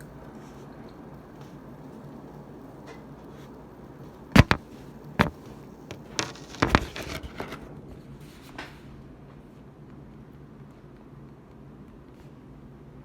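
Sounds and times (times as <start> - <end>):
sharp knocks on table: 4.4 - 4.6, 5.2 - 7.4.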